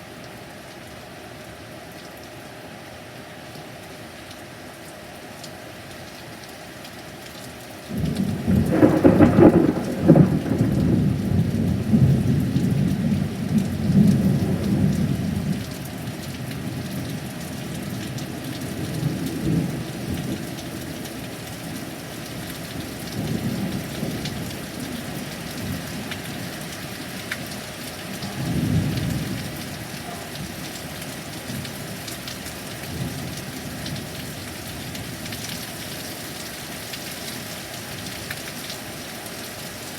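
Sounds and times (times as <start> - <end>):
steady rain: 0.0 - 39.9
thunderclap and rumbling thunder: 7.9 - 15.6, 28.2 - 30.6.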